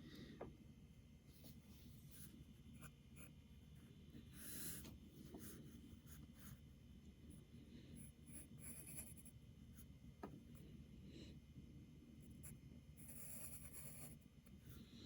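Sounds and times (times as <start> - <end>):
pencil scratching on paper: 8.0 - 9.9, 12.3 - 14.9.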